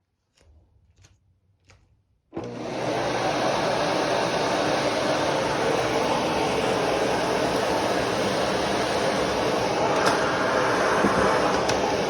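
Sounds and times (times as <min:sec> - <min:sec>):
vacuum cleaner running: 0:02.4 - 0:12.0.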